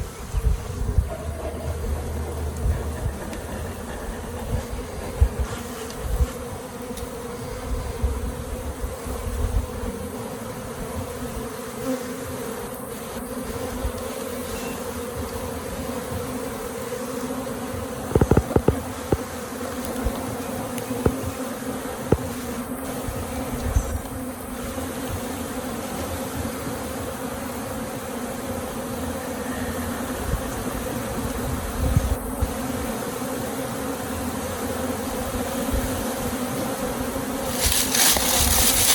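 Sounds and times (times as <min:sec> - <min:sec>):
bees buzzing: 0:00.0 - 0:38.9
low handling noise: 0:18.1 - 0:19.3
quick knocks: 0:18.1 - 0:19.3.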